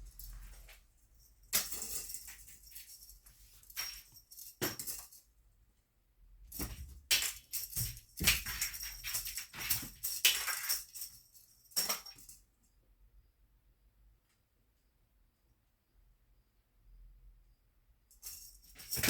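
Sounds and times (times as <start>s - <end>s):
wand toy jingling and rattling: 7.4s - 12.2s, 18.2s - 19.0s.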